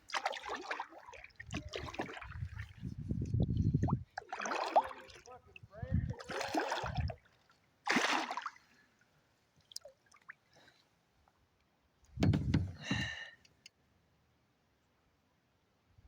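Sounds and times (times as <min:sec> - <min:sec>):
water sloshing off paddle: 0:00.0 - 0:08.7, 0:12.2 - 0:13.2
small drips and clicks: 0:09.6 - 0:11.7.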